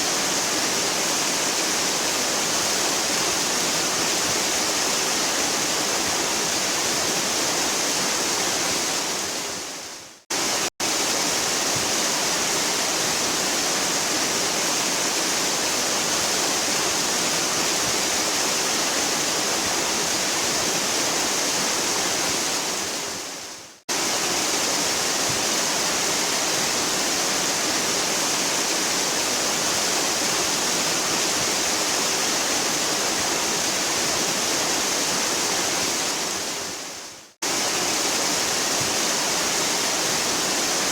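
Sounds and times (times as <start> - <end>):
waterfall rushing: 23.9 - 40.9.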